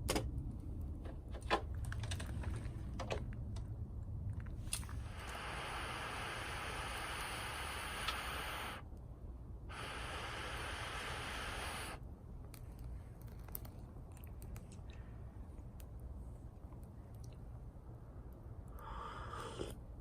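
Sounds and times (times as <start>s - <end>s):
steady hiss: 4.6s - 8.9s, 9.6s - 12.0s, 18.6s - 20.0s
twigs crackling and popping: 12.4s - 15.0s.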